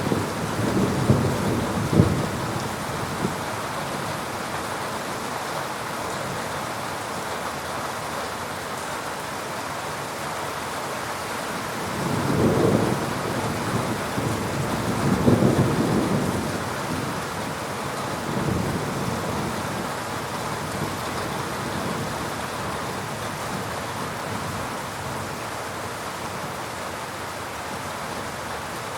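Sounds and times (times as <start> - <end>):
rolling thunder: 0.0 - 3.4, 11.9 - 17.2
heavy rain falling: 0.0 - 28.9.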